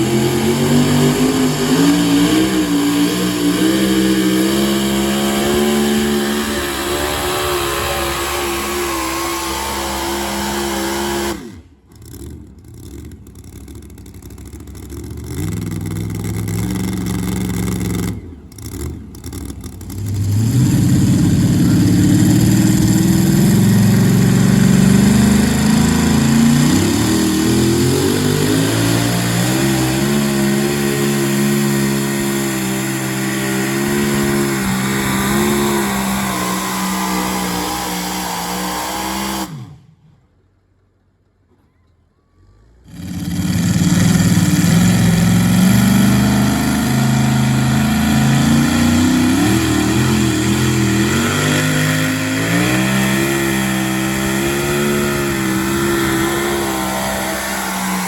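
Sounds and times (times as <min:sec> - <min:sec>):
pulling truck engine revving: 0:00.0 - 0:40.2, 0:42.5 - 0:58.0.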